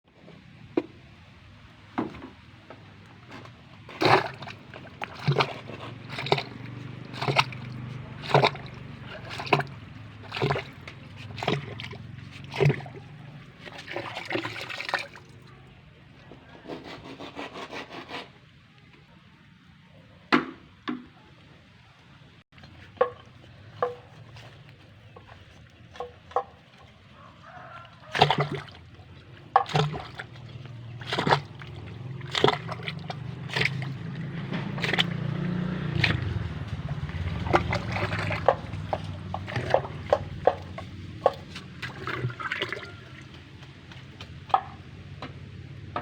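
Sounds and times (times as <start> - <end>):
mud and water sloshing: 0.1 - 16.8, 22.5 - 46.0.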